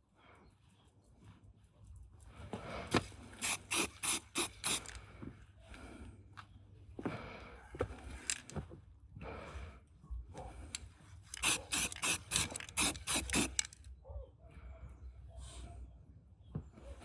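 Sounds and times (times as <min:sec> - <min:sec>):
hand tool scraping metal part: 0:03.4 - 0:05.0, 0:11.3 - 0:13.8.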